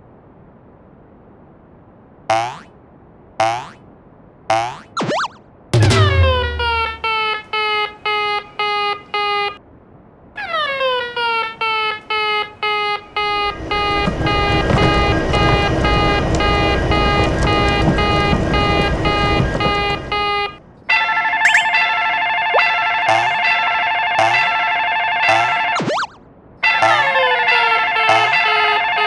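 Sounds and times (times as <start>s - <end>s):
low rumble: 5.8s - 7.1s, 13.2s - 20.6s
higher-pitched crossing bell: 21.5s - 22.0s
railroad crossing bell: 21.5s - 25.7s.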